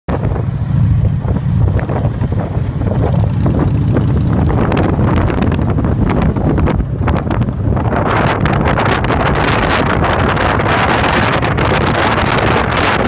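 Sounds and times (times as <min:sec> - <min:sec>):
motorcycle engine running: 0:00.1 - 0:13.0
wind buffeting on microphone: 0:00.1 - 0:13.0.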